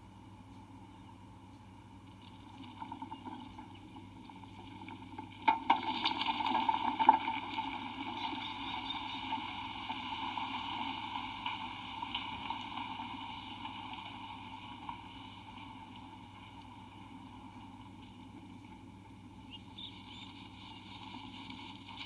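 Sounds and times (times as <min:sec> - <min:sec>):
earthquake rumbling and rattling: 0:02.3 - 0:18.6.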